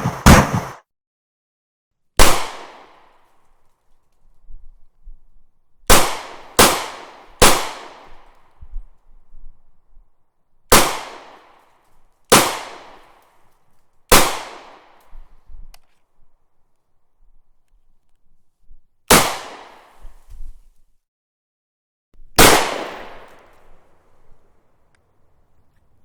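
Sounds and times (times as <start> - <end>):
sharp echoing bangs: 0.0 - 0.8, 5.9 - 8.1, 22.4 - 24.4.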